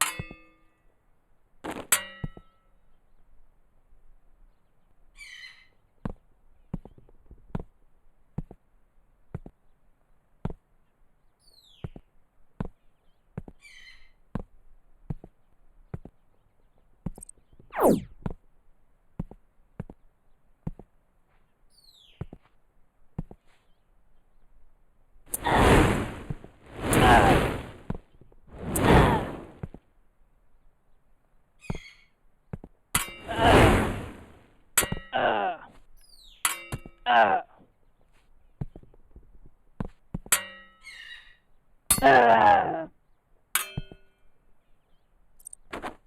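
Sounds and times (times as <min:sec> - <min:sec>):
sweep falling in pitch: 0:17.8 - 0:18.1
short scraping sounds: 0:25.3 - 0:29.6, 0:33.2 - 0:34.4
loud rushing hiss: 0:25.4 - 0:27.9, 0:33.2 - 0:34.4.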